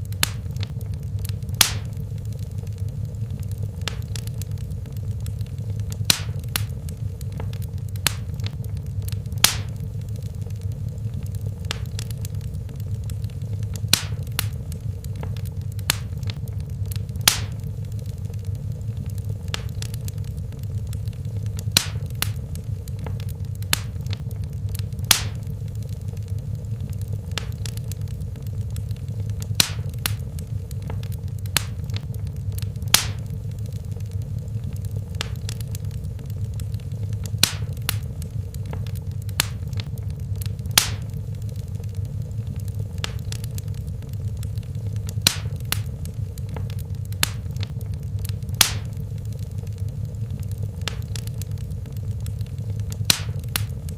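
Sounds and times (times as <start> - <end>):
fire crackles and pops: 0.0 - 53.9
wood fire burning: 0.0 - 53.9.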